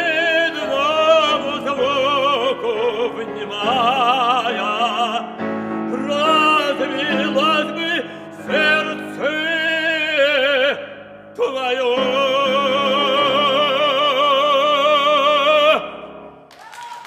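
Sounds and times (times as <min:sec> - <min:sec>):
operatic voice singing: 0:00.0 - 0:16.1
piano accompaniment: 0:00.0 - 0:16.6.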